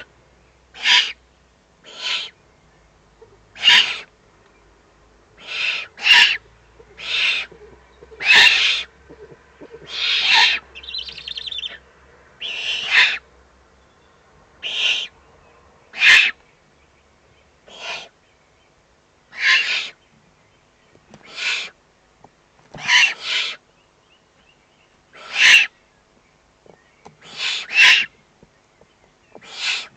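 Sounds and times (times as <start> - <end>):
owl chicks hissing begging calls: 0.7 - 1.2, 1.8 - 2.4, 3.6 - 4.1, 5.4 - 11.8, 12.4 - 13.3, 14.6 - 15.2, 15.9 - 16.4, 17.6 - 18.2, 19.3 - 20.0, 21.1 - 21.8, 22.8 - 23.7, 25.1 - 25.8, 27.1 - 28.2, 29.3 - 29.9.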